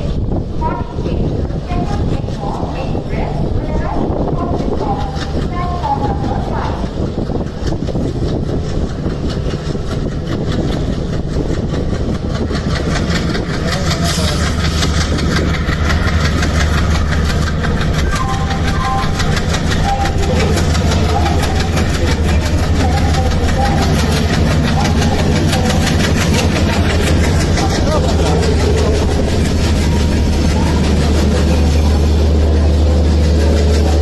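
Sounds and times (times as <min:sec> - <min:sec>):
train locomotive humming: 0:00.0 - 0:34.0.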